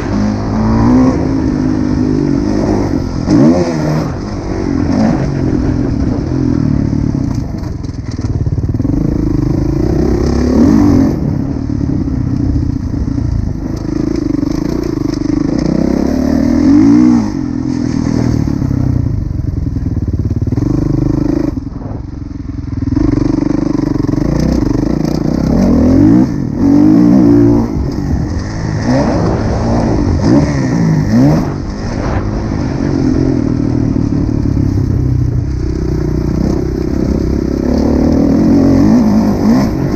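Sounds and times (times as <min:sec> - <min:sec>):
motocross engine revving: 0:00.0 - 0:07.7, 0:08.7 - 0:11.7, 0:22.8 - 0:39.9.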